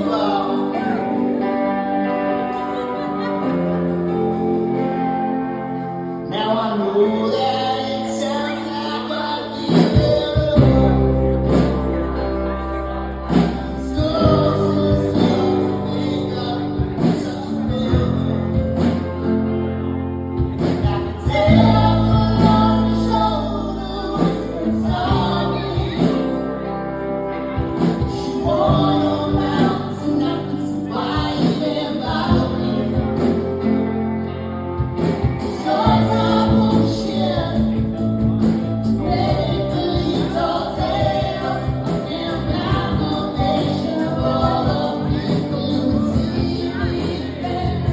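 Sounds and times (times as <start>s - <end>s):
bass: 0.0s - 47.9s
person singing: 0.0s - 47.9s
sustained guitar: 0.0s - 47.9s
drums: 9.5s - 26.8s, 27.4s - 34.0s, 34.8s - 47.9s.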